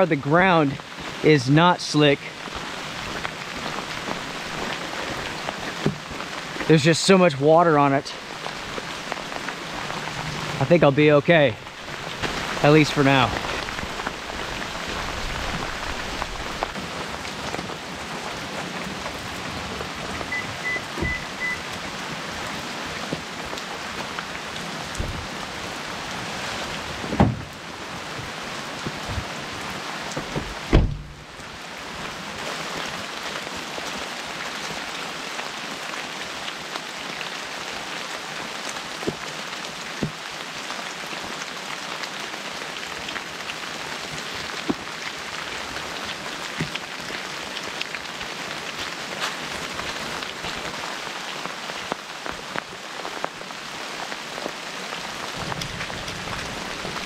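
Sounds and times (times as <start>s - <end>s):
freezing rain falling: 0.0s - 57.0s
faint short beeps: 20.3s - 21.6s
loud thumps: 27.1s - 27.5s, 30.2s - 31.3s.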